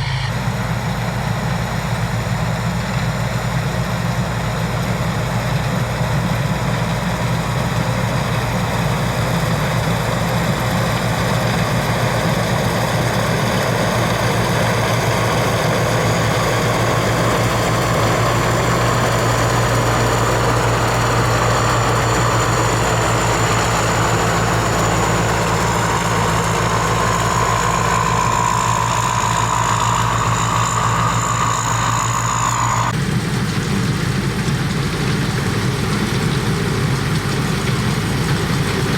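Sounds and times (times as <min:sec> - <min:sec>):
mechanical whine: 0:00.0 - 0:34.0
harvester engine drone: 0:00.0 - 0:38.9.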